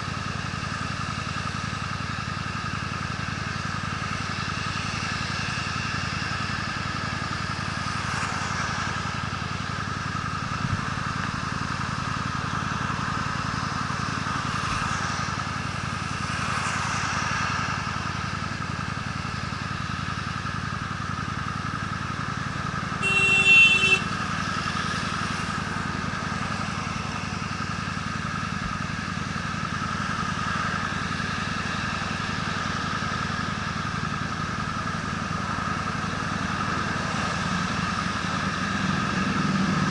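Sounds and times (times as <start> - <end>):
motorcycle engine running: 0.0 - 39.9
road noise: 0.0 - 39.9
loud pitched tone: 23.0 - 24.1.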